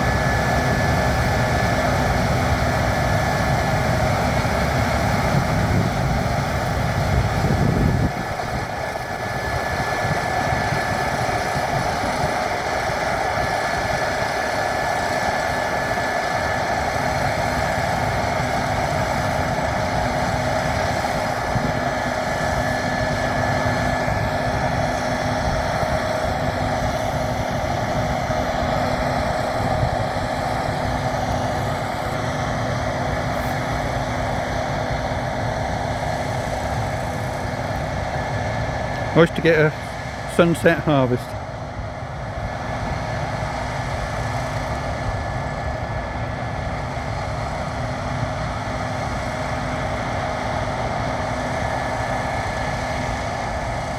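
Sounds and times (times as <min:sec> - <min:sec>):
combine harvester drone: 0:00.0 - 0:53.9
steady machine whine: 0:00.0 - 0:53.9.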